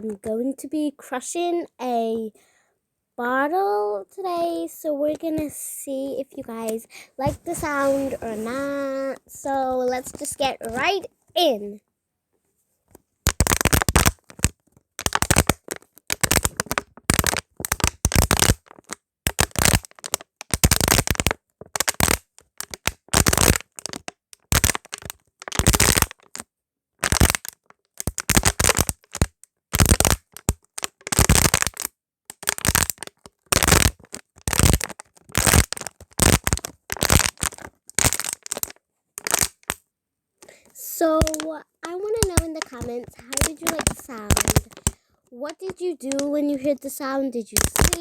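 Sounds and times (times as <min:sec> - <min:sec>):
bottle being crushed: 0:13.3 - 0:22.1, 0:30.8 - 0:39.8, 0:42.2 - 0:45.0.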